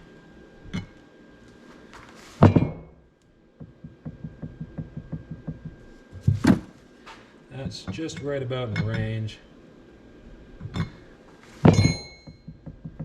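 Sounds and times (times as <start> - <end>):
heavy knocks of metal tools: 11.6 - 13.0.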